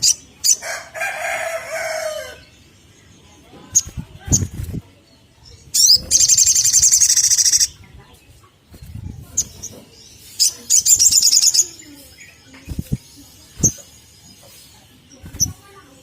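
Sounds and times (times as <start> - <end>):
bird chittering trills: 5.4 - 16.0.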